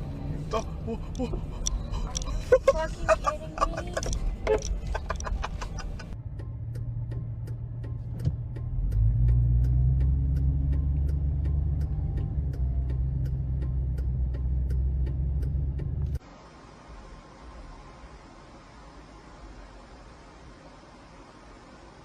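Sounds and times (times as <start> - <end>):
car rumble: 0.0 - 22.0
steady ticking: 0.5 - 16.0
faint hiss: 16.2 - 22.0.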